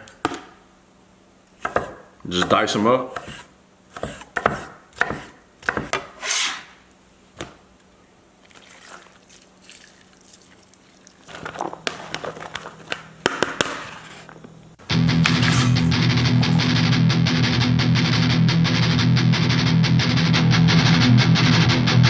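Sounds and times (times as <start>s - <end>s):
knife chopping on cutting board: 1.6s - 6.6s
knife scraping cutting board: 1.6s - 6.8s, 13.6s - 14.4s, 15.2s - 16.8s.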